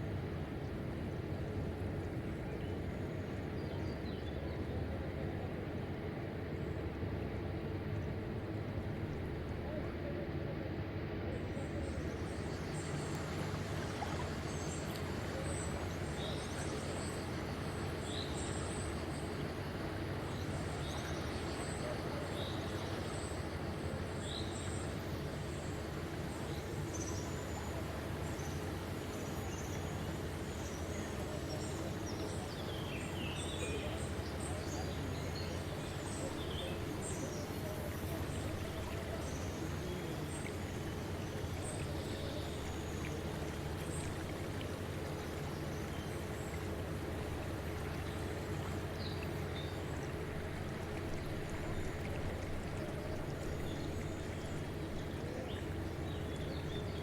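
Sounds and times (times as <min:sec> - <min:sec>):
low background noise: 0:00.0 - 0:57.0
small birds chirping: 0:26.4 - 0:57.0.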